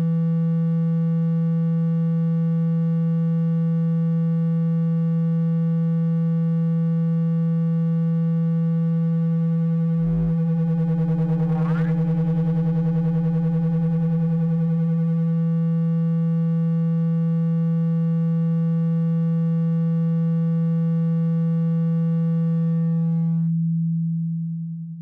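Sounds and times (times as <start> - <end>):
low buzzy electronic tone: 8.2 - 17.7, 20.0 - 25.0.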